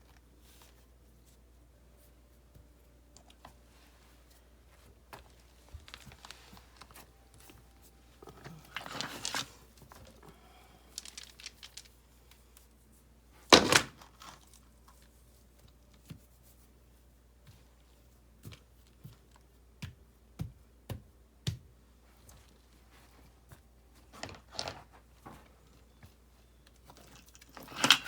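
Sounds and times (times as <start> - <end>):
light clicks of rocks: 8.2 - 12.7.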